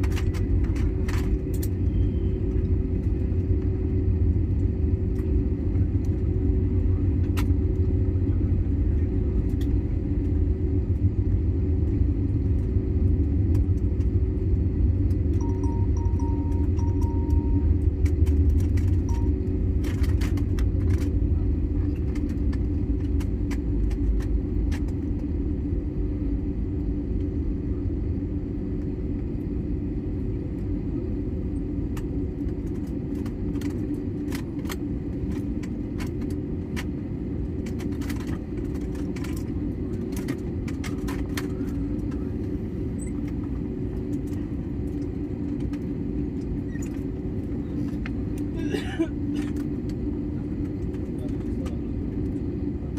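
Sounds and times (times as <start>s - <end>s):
rumble of wheels: 0.0s - 26.0s
airliner engine hum: 0.0s - 52.9s.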